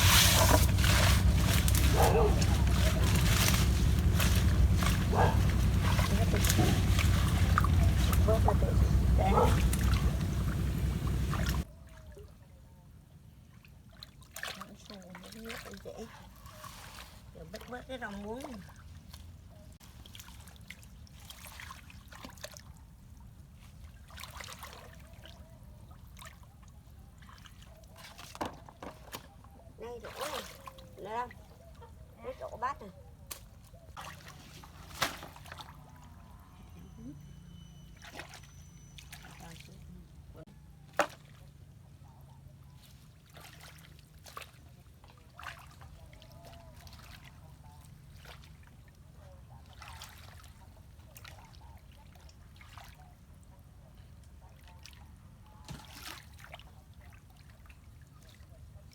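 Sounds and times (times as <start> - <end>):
low steady rumble: 0.0 - 11.7
water trickling and splashing: 0.0 - 12.6, 13.3 - 58.9.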